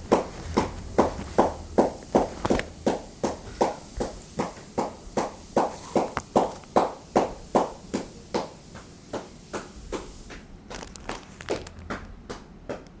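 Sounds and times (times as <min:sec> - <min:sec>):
footsteps walking: 0:00.0 - 0:08.0.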